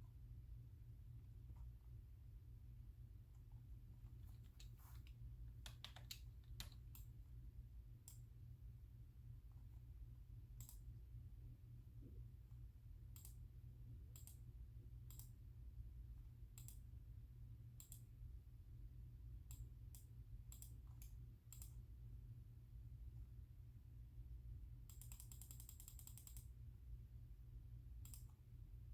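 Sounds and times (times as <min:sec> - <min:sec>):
computer mouse clicks: 0:04.2 - 0:07.2, 0:08.0 - 0:08.3, 0:10.6 - 0:10.9, 0:13.2 - 0:13.4, 0:14.1 - 0:14.4, 0:15.1 - 0:15.4, 0:16.6 - 0:16.9, 0:17.8 - 0:18.1, 0:19.5 - 0:21.8, 0:24.9 - 0:26.5, 0:28.0 - 0:28.4.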